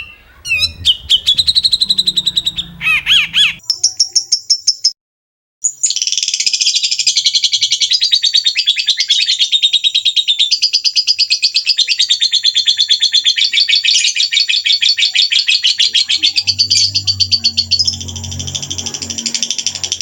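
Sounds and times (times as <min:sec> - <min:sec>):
low steady hum: 0:00.0 - 0:03.6, 0:16.0 - 0:20.0
songbird rasping chatter call: 0:00.0 - 0:03.6.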